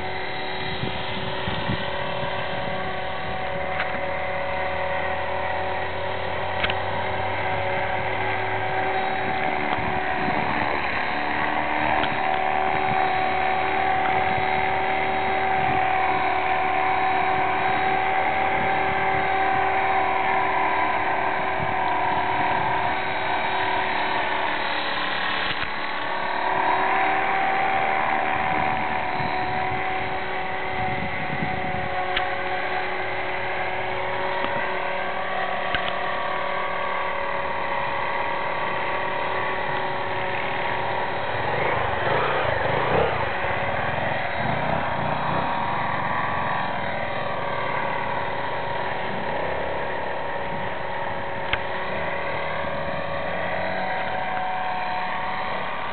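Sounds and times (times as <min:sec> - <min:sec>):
rc helicopter motor whine: 0:00.0 - 0:55.9.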